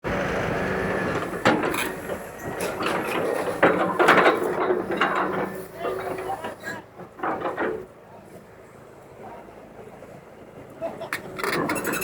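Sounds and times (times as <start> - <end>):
sharp knocks and clatters: 1.4 - 5.6.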